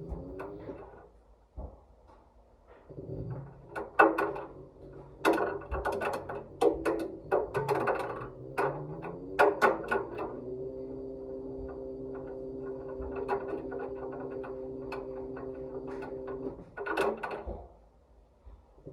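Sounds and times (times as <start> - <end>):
washing machine motor hum: 0.0 - 1.0, 2.9 - 17.8
ball knocking in washing machine drum: 3.1 - 17.7.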